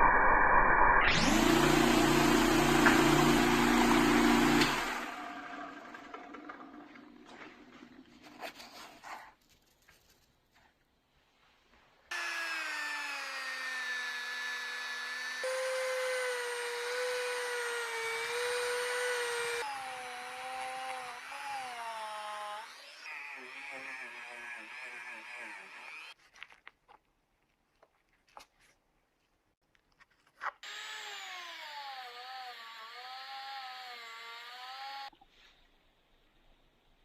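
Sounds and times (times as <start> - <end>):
power tool motor whining: 1.1 - 7.2, 12.1 - 26.2, 30.6 - 35.1.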